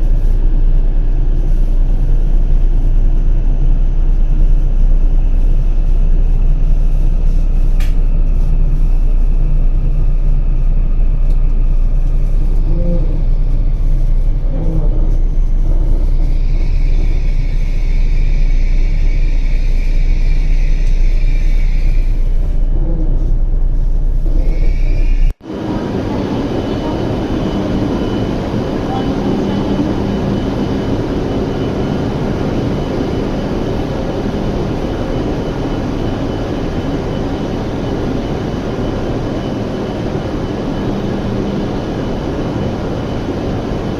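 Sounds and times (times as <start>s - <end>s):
train running at speed: 0.0s - 43.9s
hissing band: 24.5s - 43.9s.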